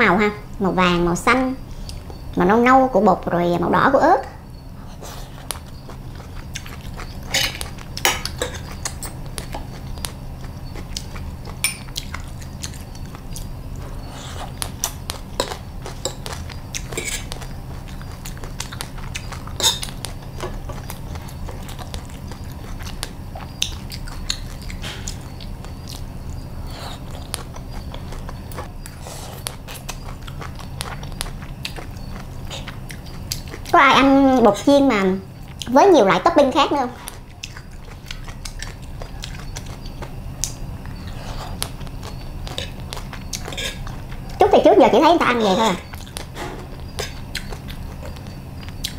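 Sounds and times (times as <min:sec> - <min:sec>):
steady low hum: 0:00.0 - 0:48.9
chewing and mouth sounds: 0:04.9 - 0:35.8, 0:36.9 - 0:44.6, 0:45.3 - 0:48.9
fork and spoon scraping on plate: 0:16.9 - 0:17.3.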